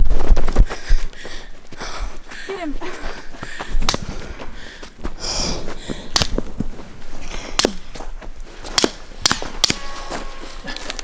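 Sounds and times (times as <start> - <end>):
people breathing hard: 0.5 - 9.2.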